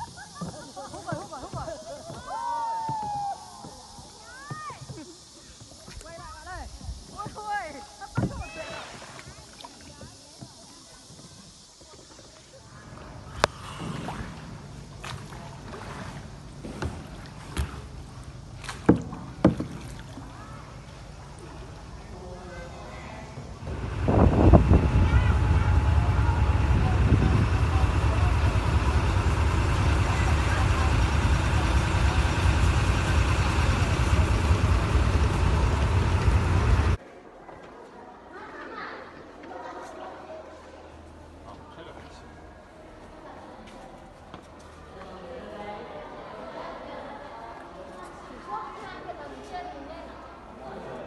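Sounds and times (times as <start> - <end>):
water and motion noise: 0.0 - 37.0
engine deep rumble: 12.8 - 37.0.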